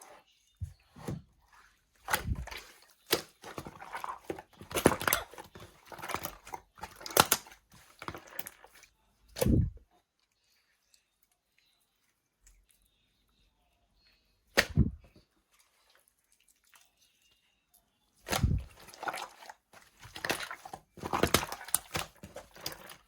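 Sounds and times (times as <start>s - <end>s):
slime squishing: 0.0s - 9.9s, 14.5s - 17.4s, 18.2s - 23.0s.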